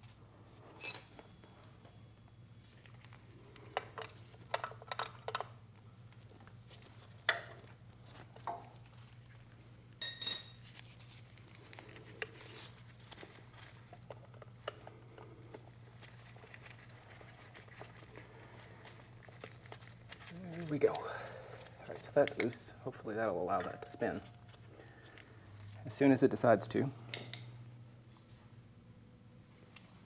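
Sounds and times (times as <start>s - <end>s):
hand tools clinking on metal: 23.5s - 24.4s.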